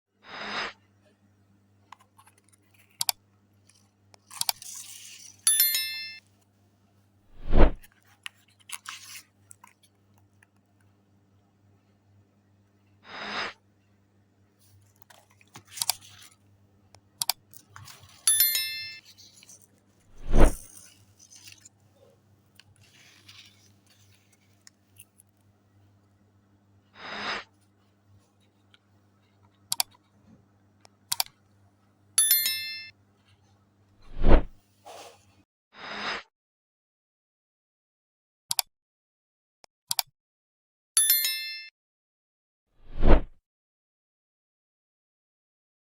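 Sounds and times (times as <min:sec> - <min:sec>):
short clicks and crinkles: 0:01.9 - 0:05.8, 0:14.7 - 0:16.4, 0:17.2 - 0:22.0
bell-like chime: 0:05.5 - 0:06.2, 0:18.3 - 0:19.0, 0:32.2 - 0:32.9, 0:41.0 - 0:41.7
sharp whooshes: 0:07.3 - 0:07.8, 0:20.1 - 0:20.6, 0:34.1 - 0:34.5, 0:42.9 - 0:43.3.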